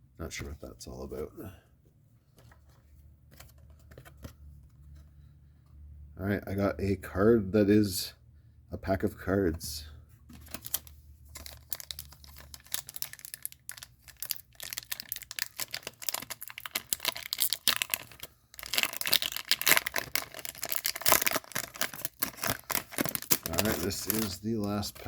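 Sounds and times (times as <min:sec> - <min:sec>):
wrapper rustling and crinkling: 0:10.4 - 0:25.0
pack wrapper tearing: 0:11.4 - 0:25.0.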